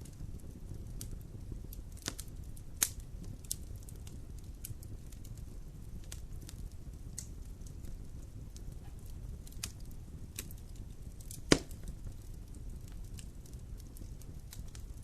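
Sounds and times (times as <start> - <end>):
fire crackles: 0.0 - 15.0
wood fire burning: 0.0 - 15.0
loud wood pop: 11.5 - 11.8.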